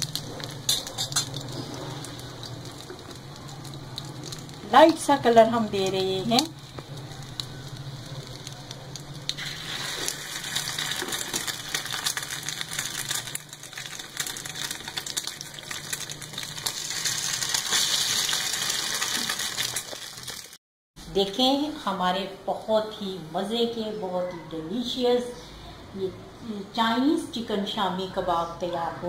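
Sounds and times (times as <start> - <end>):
food sizzling in oil: 0.0 - 20.6.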